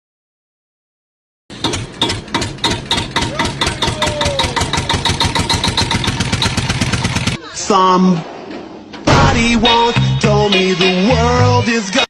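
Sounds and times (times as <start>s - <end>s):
small engine knocking: 1.5s - 7.4s.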